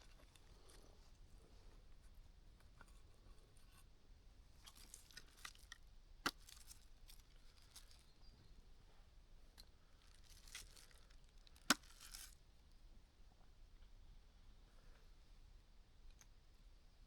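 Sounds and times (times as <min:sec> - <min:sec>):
small handling clicks and crinkles: 0:04.6 - 0:08.2, 0:09.6 - 0:12.4.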